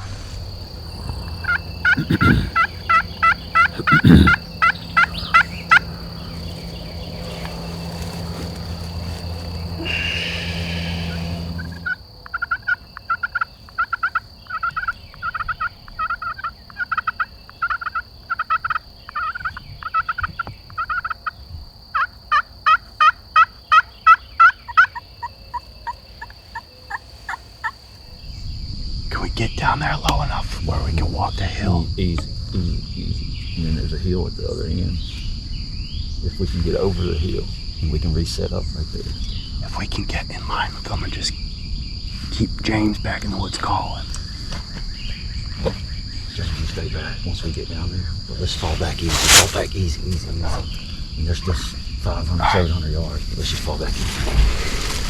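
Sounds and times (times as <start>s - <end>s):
low rumble: 0.0s - 12.0s
high insect trill: 0.0s - 55.0s
turkey yelping: 0.6s - 21.4s, 22.0s - 28.0s.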